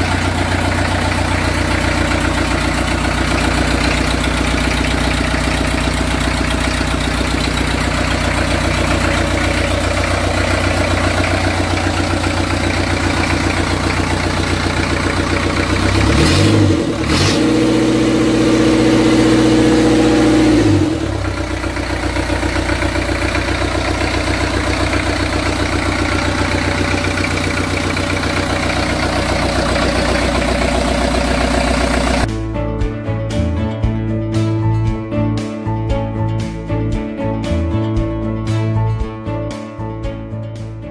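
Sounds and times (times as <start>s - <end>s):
diesel engine idling and revving: 0.0s - 32.3s.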